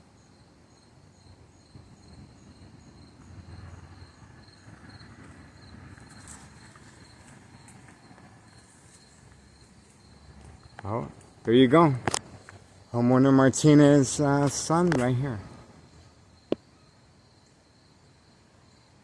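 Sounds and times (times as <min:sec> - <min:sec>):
insects chirping: 0:00.0 - 0:19.0
low background rumble: 0:01.1 - 0:13.2.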